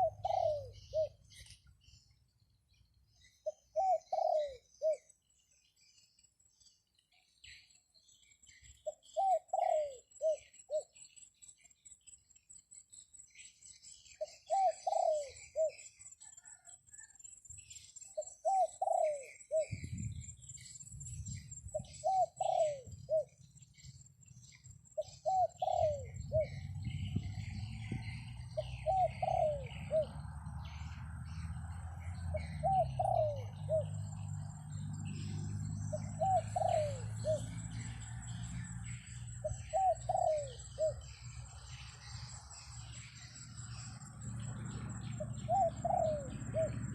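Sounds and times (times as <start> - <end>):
dove cooing: 0.0 - 1.5, 3.4 - 5.1, 8.8 - 10.9, 14.2 - 17.1, 18.2 - 19.9, 21.7 - 23.4, 25.0 - 30.3, 32.1 - 34.4, 35.0 - 43.8, 44.6 - 46.9
small birds chirping: 0.0 - 46.9
low wind rumble: 19.7 - 21.9, 26.0 - 28.9.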